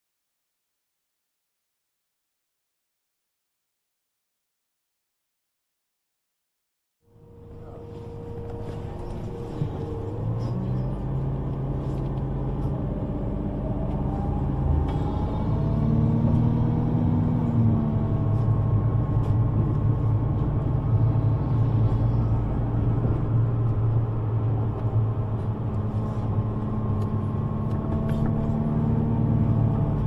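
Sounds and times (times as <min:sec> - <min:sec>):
vehicle engine rumble: 0:07.1 - 0:30.0.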